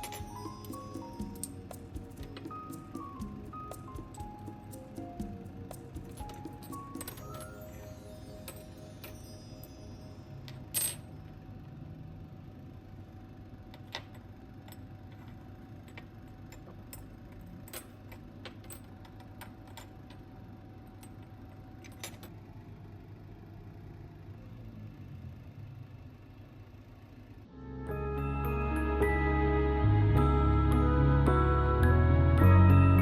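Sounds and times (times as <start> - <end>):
glass pieces clinking: 0.0 - 3.0, 5.8 - 11.1
low room hum: 0.0 - 33.0.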